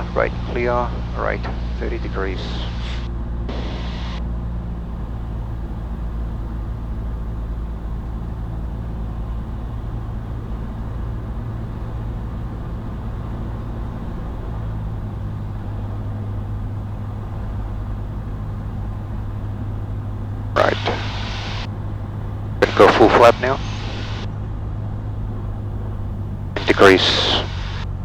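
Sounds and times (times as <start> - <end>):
aircraft engine and propeller droning: 0.0 - 28.0.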